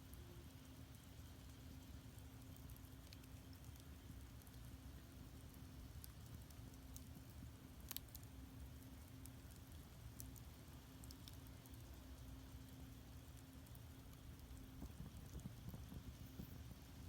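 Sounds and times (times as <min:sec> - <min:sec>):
low fire rumble: 0:04.0 - 0:17.0
firewood crackling and popping: 0:13.4 - 0:17.0.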